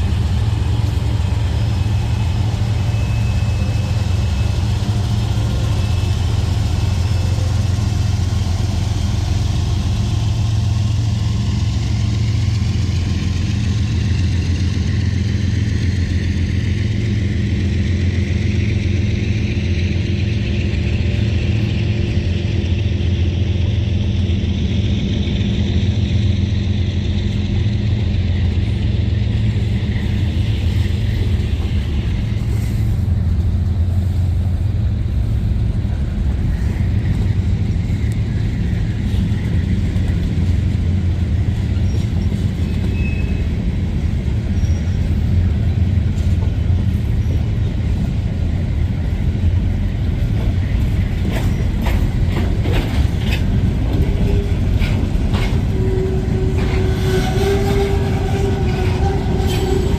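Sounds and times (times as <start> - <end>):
diesel locomotive rumble: 0.0 - 59.9
train wheels clicking on rails: 0.0 - 59.9.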